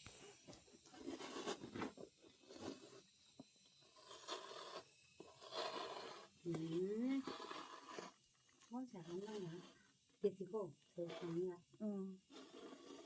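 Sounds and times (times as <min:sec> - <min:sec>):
silkworms chewing leaves: 0:03.8 - 0:13.0.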